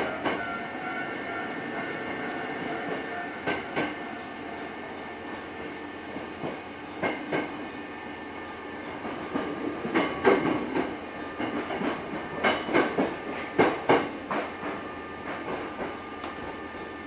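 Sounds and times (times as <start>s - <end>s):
train running hum: 0.0s - 17.0s
wheels clacking over rail joints: 6.1s - 7.6s, 8.9s - 16.5s.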